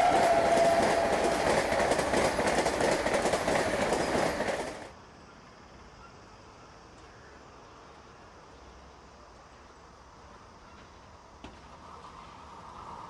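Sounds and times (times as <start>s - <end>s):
train horn: 0.0s - 1.7s
train wheels rushing on rail: 0.0s - 5.0s, 10.3s - 13.0s
faint hiss: 3.9s - 13.0s.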